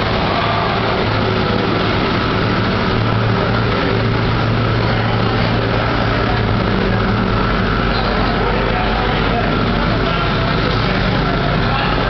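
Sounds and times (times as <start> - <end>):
car engines idling: 0.0 - 12.0
constant rushing noise: 0.0 - 12.0.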